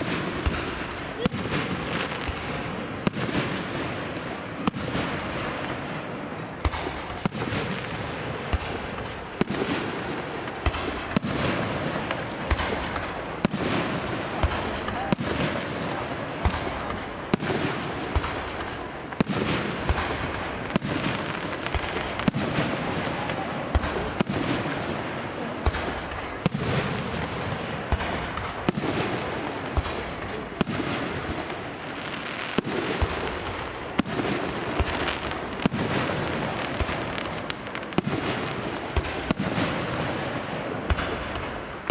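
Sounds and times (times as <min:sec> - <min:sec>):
fireworks banging: 0:00.0 - 0:41.9.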